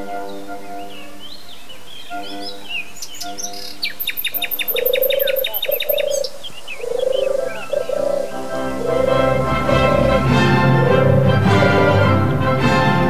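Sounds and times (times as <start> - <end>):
orchestral music: 0.0 - 3.8, 7.7 - 13.0
small birds chirping: 0.0 - 12.2.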